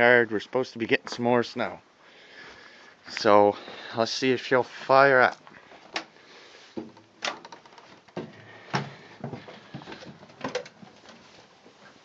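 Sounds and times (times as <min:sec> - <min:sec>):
light handling clicks and knocks: 0:06.8 - 0:11.3.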